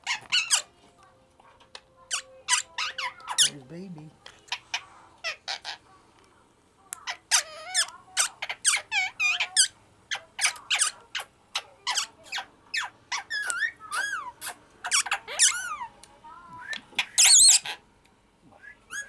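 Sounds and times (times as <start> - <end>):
parrots squeaking and chirping: 0.0 - 0.8, 1.5 - 3.7, 4.4 - 5.9, 7.0 - 16.0, 16.6 - 17.8.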